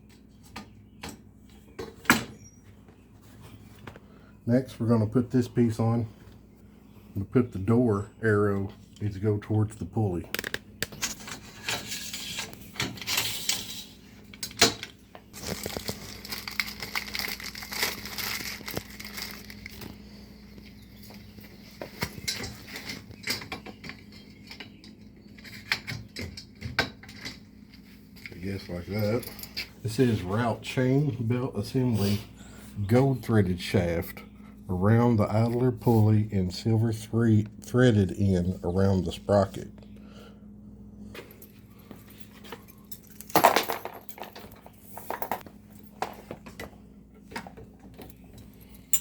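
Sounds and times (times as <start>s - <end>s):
metal parts clinking: 48.7s - 49.0s.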